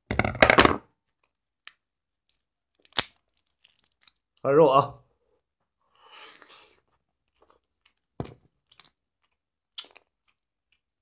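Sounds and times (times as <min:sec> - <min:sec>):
person chewing and crunching: 0:07.3 - 0:11.0.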